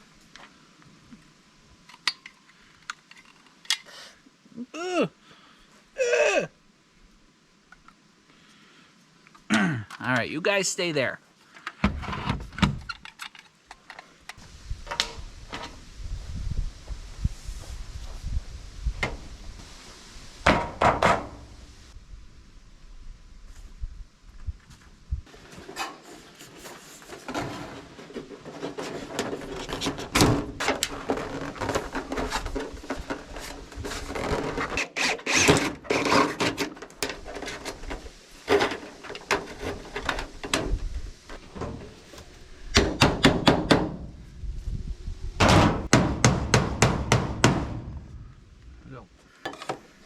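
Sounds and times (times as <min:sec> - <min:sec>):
knocks and clattering of building materials: 0:20.4 - 0:21.4, 0:25.3 - 0:42.0, 0:42.7 - 0:44.0, 0:45.4 - 0:48.1, 0:49.4 - 0:49.9.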